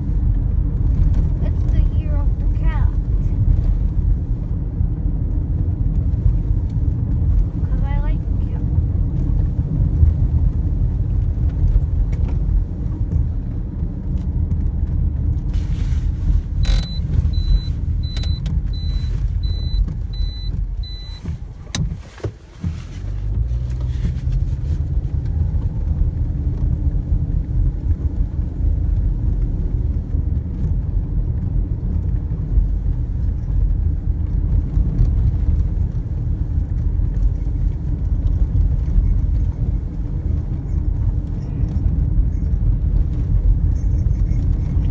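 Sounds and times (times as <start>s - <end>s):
vehicle engine rumble: 0.0s - 44.9s
short high beeps: 16.6s - 21.3s.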